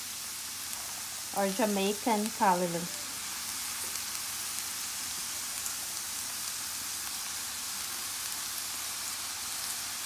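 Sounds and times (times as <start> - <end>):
greens sizzling in hot oil: 0.0 - 10.0.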